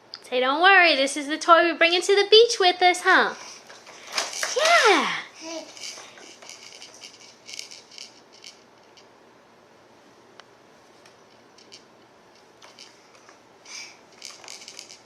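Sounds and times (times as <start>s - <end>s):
plastic toys rattling: 3.4s - 9.0s, 12.4s - 15.0s.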